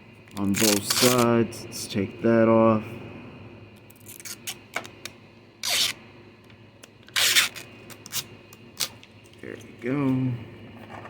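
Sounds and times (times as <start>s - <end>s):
plastic film ripping off: 0.4s - 1.3s, 7.1s - 9.0s.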